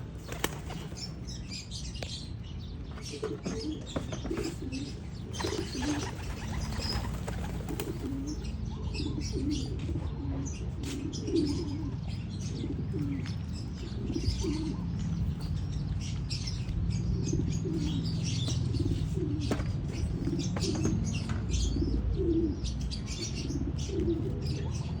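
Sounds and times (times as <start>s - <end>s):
wings flapping: 0.2s - 1.1s, 5.4s - 8.3s
pigeons cooing: 2.9s - 25.0s.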